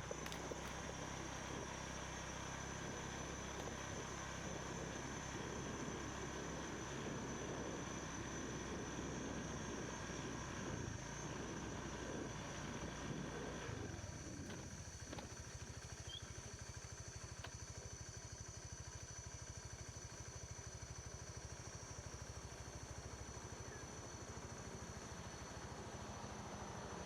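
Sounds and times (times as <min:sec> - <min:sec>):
motorbike engine running: 0:00.0 - 0:27.0.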